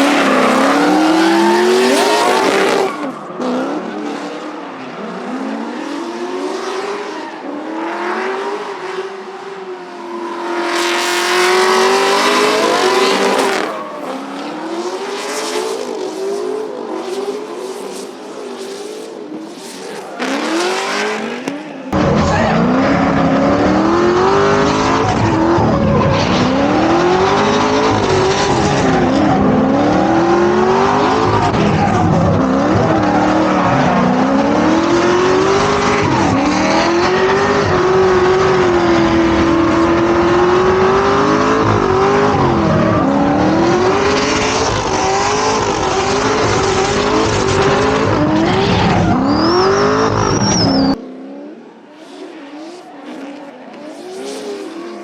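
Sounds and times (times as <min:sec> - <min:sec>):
tyre squeal: 0:00.0 - 0:03.4, 0:10.2 - 0:14.6, 0:41.6 - 0:51.0
car engine revving hard: 0:00.0 - 0:09.1, 0:10.4 - 0:18.2, 0:19.2 - 0:51.5.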